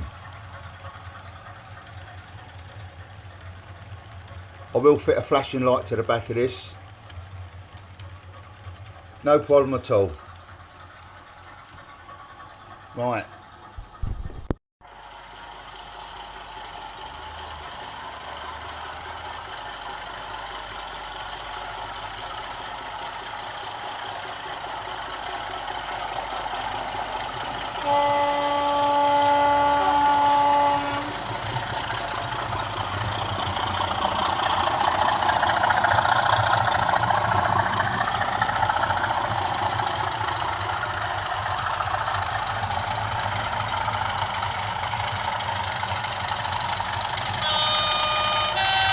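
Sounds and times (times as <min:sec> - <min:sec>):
model diesel locomotive engine: 0:00.0 - 0:48.9
locomotive horn: 0:27.8 - 0:31.2, 0:47.4 - 0:48.9.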